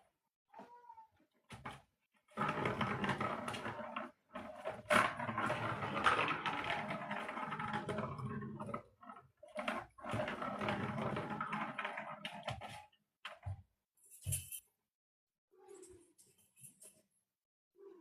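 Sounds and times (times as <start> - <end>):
cat rustling and scratching toy: 1.5 - 8.4, 9.0 - 13.5.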